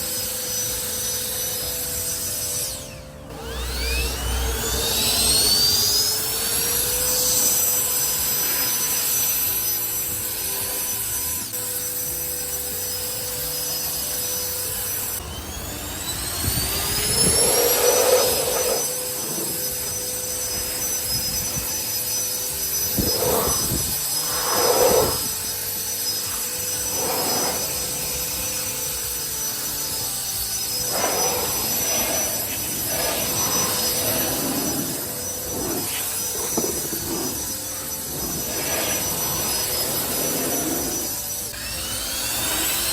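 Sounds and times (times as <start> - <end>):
ducted-fan blower whining: 0.0 - 42.9
rushes of air: 16.3 - 21.7, 22.9 - 25.4, 26.8 - 28.3, 30.8 - 41.3.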